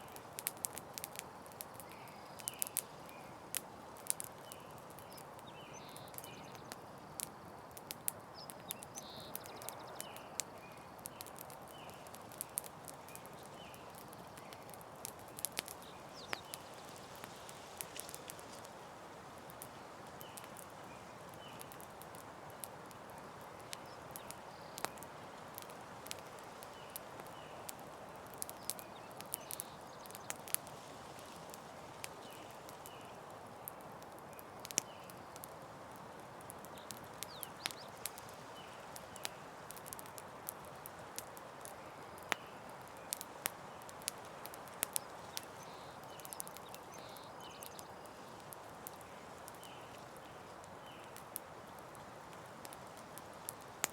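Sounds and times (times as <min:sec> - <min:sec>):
campfire hissing: 0:00.0 - 0:53.9
wood crackling and popping: 0:00.0 - 0:53.9.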